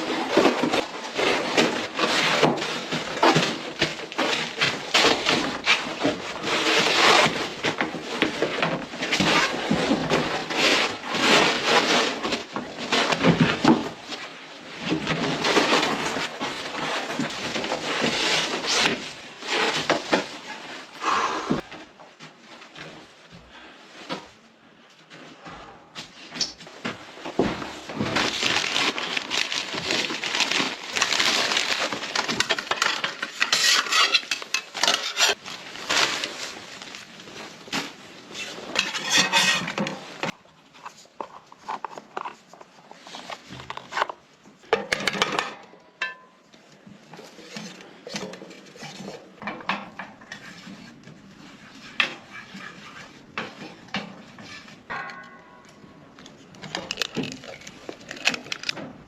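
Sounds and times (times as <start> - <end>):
utensils clinking and knocking: 28.2 - 35.4, 54.9 - 55.9
cookware scraping and clattering: 30.2 - 35.4, 38.3 - 40.4, 51.8 - 55.9.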